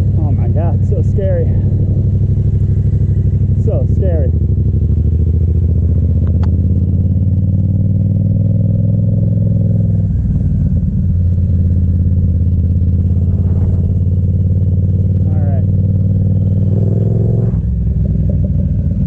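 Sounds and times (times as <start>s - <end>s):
motorcycle engine running steadily: 0.0s - 19.0s.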